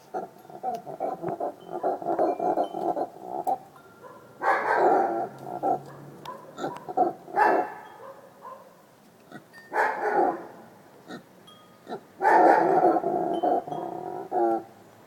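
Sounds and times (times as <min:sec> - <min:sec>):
howler monkey roaring: 0:00.1 - 0:03.7, 0:04.6 - 0:07.4, 0:11.9 - 0:14.7.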